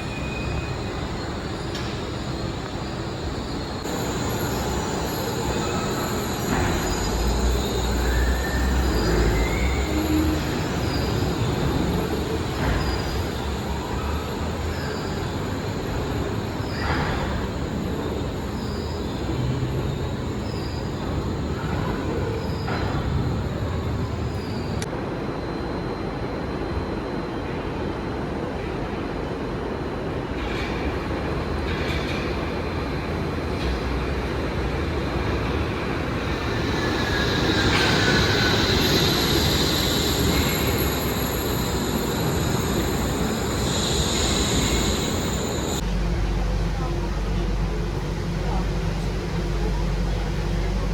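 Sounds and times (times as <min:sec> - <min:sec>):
high-pitched wheel squeal: 0:00.0 - 0:24.8, 0:35.8 - 0:45.8
suspension train rumble: 0:00.0 - 0:50.9.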